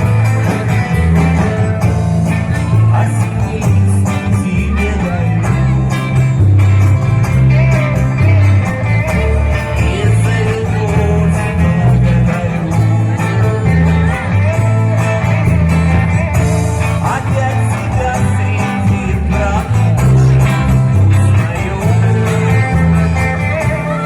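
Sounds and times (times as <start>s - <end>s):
guitar: 0.0s - 24.0s
live band playing a song: 0.0s - 24.0s
steady bass line: 0.0s - 24.0s.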